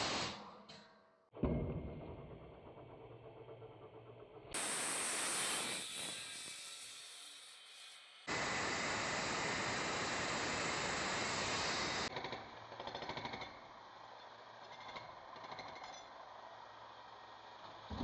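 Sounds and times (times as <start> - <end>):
concrete saw cutting: 4.6 - 13.4.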